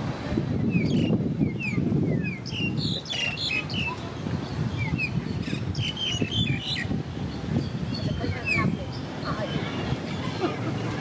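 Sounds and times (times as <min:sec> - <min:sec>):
small birds chirping: 0:00.5 - 0:10.4.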